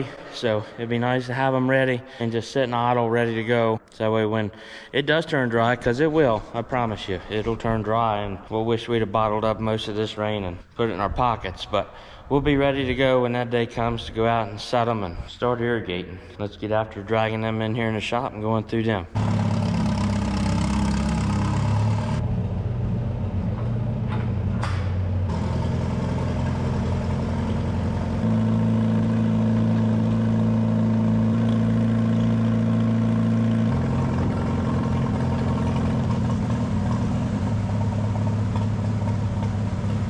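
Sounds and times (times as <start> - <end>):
tractor engine running: 19.1 - 40.0.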